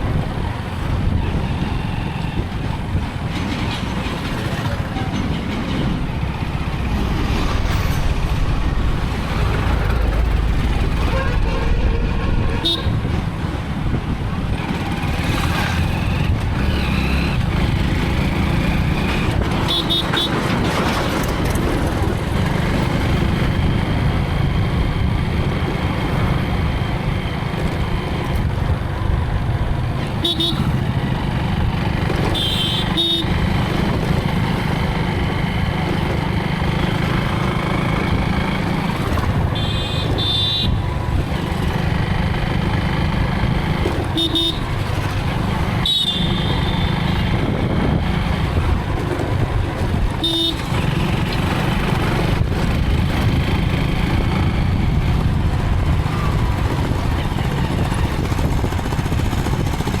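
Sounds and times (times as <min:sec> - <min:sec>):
motorcycle engine: 0:00.0 - 1:00.0
road and wind rumble: 0:00.0 - 1:00.0
vehicle horn beeps: 0:11.1 - 0:13.0, 0:19.6 - 0:20.4, 0:30.2 - 0:30.7, 0:32.3 - 0:33.3, 0:39.5 - 0:40.9, 0:44.2 - 0:44.8, 0:45.8 - 0:47.0, 0:50.2 - 0:51.0.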